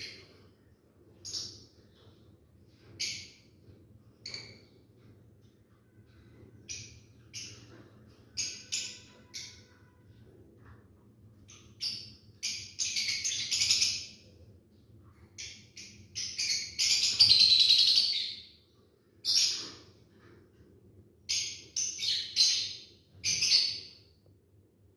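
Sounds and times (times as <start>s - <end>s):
lovebirds shrill chirps: 11.5s - 14.2s, 15.4s - 18.4s, 21.3s - 24.0s.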